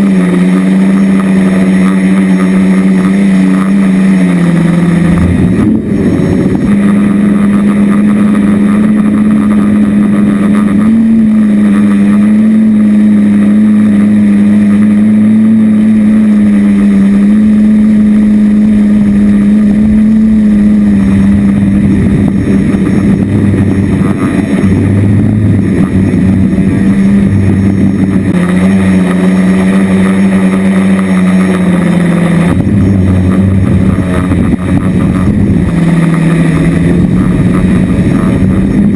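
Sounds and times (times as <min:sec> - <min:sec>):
drone motors droning hum: 0:00.0 - 0:38.9
wind buffeting microphone: 0:04.0 - 0:11.2, 0:17.5 - 0:31.0, 0:32.0 - 0:38.9.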